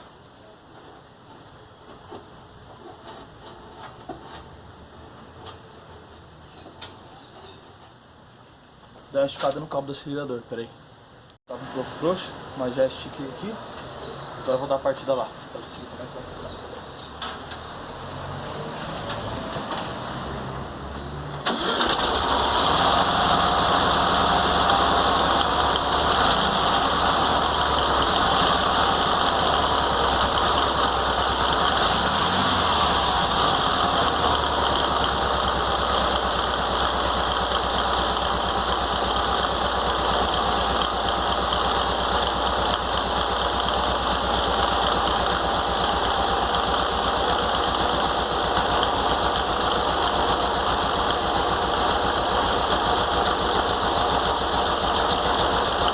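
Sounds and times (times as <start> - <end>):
car engine running: 21.0 - 55.9.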